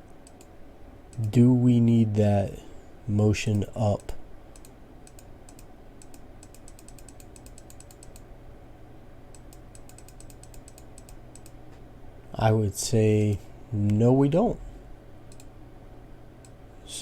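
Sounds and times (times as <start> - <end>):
steady low hum: 0.0 - 17.0
computer keyboard typing: 4.0 - 8.2, 9.4 - 11.6.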